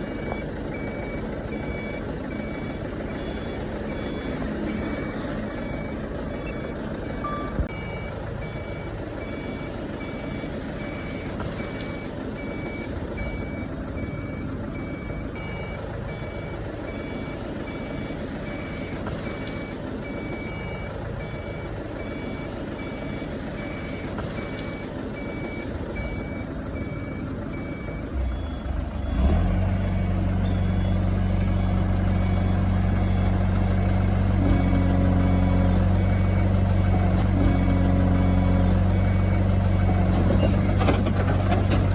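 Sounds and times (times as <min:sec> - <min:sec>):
diesel engine running: 0:00.0 - 0:41.9
backup alarm beeping: 0:00.1 - 0:33.5.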